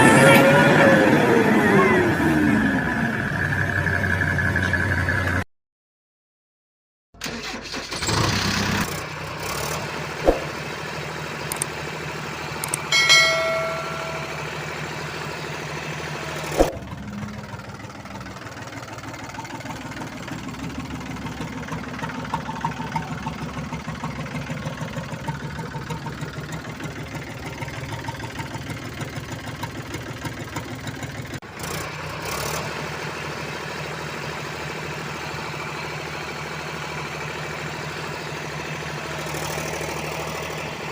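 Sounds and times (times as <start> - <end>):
vehicle engine idling: 8.4 - 40.9
sharp clicks: 11.5 - 11.7, 12.6 - 12.9.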